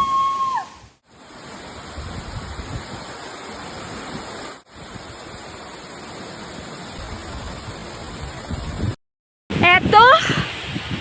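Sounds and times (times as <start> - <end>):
wind rumbling on microphone: 0.7 - 5.8, 6.4 - 11.0.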